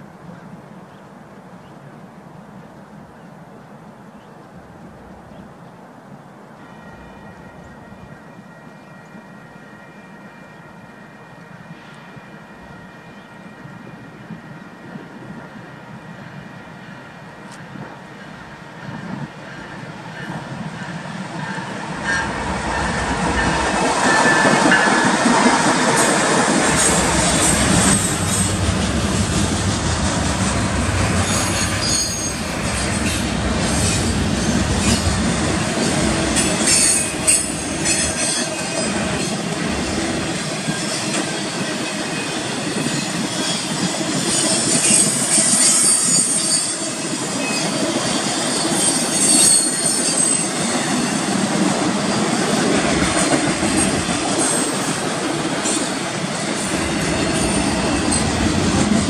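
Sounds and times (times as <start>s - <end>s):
train wheels rushing on rail: 7.6s - 59.0s
diesel locomotive rumble: 17.6s - 37.9s
high wheel squeal: 31.2s - 33.2s, 42.8s - 51.3s.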